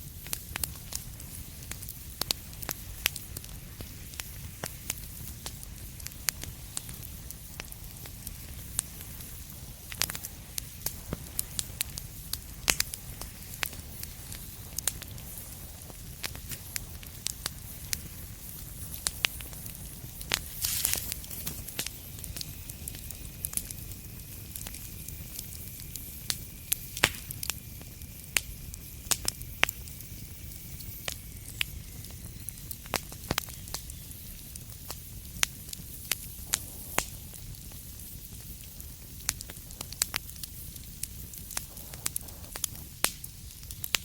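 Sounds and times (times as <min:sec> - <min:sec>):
low rumble of fire: 0:00.0 - 0:44.0
wood fire crackling and popping: 0:00.0 - 0:44.0
short hiss: 0:20.4 - 0:21.9.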